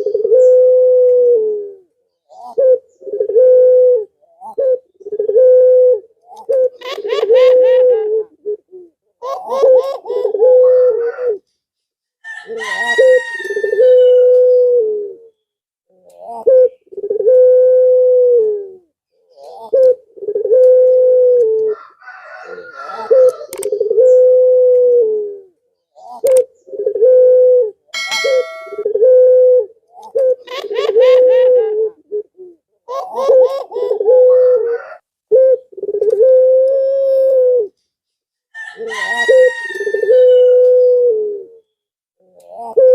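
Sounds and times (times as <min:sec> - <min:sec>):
dove cooing: 0:00.0 - 0:11.5, 0:12.2 - 0:37.8, 0:38.5 - 0:42.9
higher-pitched bird call: 0:28.0 - 0:29.4.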